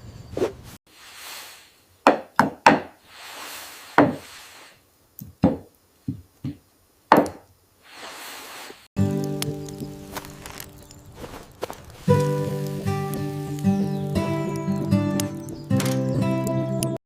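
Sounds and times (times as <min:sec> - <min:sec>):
soft noise swells: 0:03.0 - 0:04.9
wooden knocks: 0:05.2 - 0:07.4.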